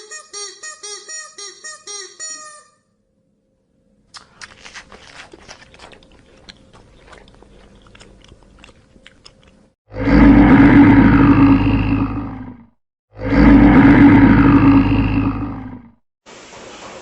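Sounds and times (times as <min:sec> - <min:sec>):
animal chewing: 0:04.2 - 0:09.7
loud animal roar: 0:09.9 - 0:16.0.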